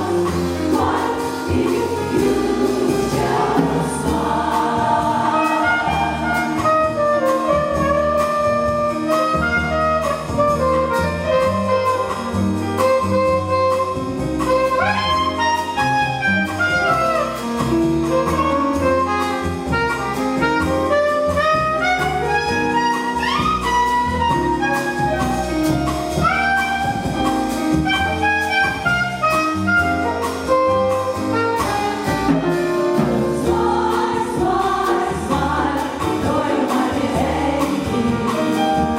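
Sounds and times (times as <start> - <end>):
jazz piano bass and drums: 0.0 - 38.9
saxophone solo: 5.3 - 33.4.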